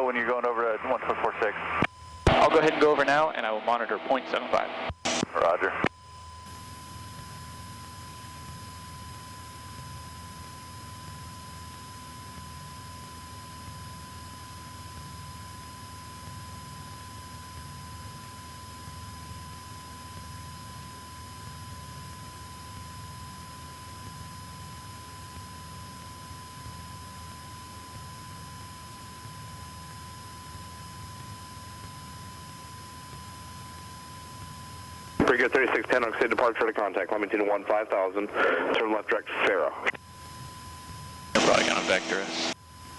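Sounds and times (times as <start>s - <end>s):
muffled aircraft engine drone: 6.5s - 42.9s
thin electrical whine: 38.5s - 42.9s.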